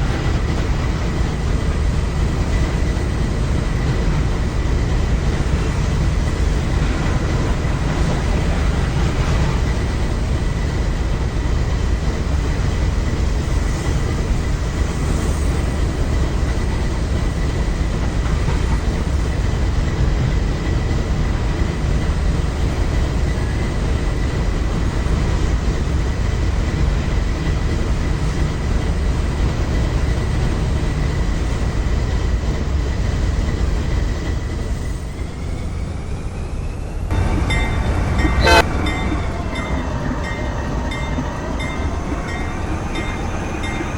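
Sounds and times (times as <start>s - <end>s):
train wheels rumbling on rail: 0.0s - 43.9s
several steady tones: 37.1s - 43.9s
thin high tone: 37.1s - 43.9s.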